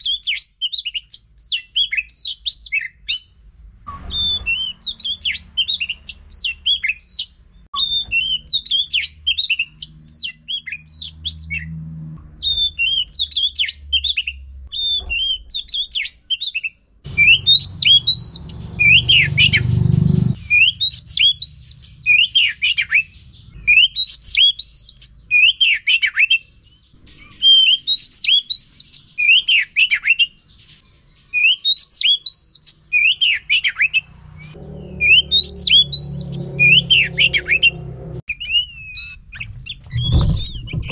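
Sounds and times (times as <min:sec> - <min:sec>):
magpie-robin singing: 0:00.0 - 0:03.4, 0:04.0 - 0:11.7, 0:12.3 - 0:40.9
low hum: 0:34.0 - 0:38.3.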